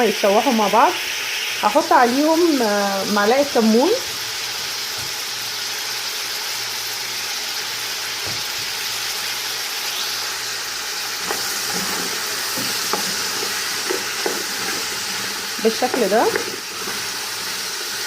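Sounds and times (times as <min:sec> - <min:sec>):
vegetables sizzling in hot oil: 0:00.0 - 0:18.0
spoon scraping and knocking pot: 0:11.2 - 0:17.2.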